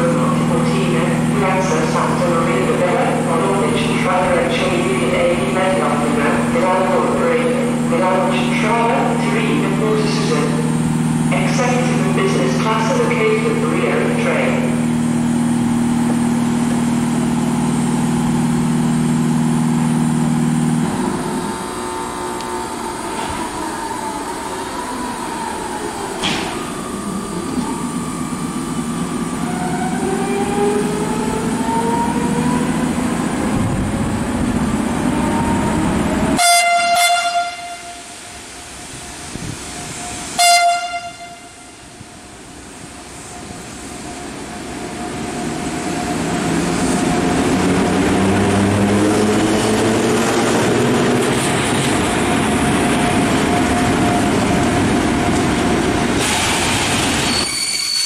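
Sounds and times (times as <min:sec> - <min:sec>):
electric locomotive whine: 0:00.0 - 0:58.0
rumble of wheels on rail: 0:00.0 - 0:58.0
train horn calls: 0:36.4 - 0:38.2, 0:40.3 - 0:41.9
squealing wheels or brakes: 0:57.2 - 0:58.0.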